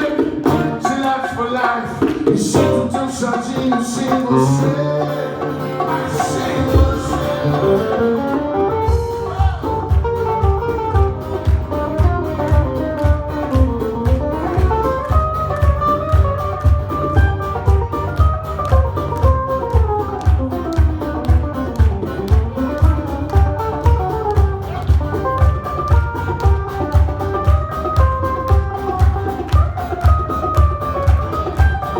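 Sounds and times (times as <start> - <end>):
plucked guitar melody: 0.0 - 1.1, 2.5 - 31.9
acoustic soul band playing: 0.0 - 31.9
bass line: 2.4 - 3.3, 4.2 - 31.9
steady low beat: 8.9 - 29.4.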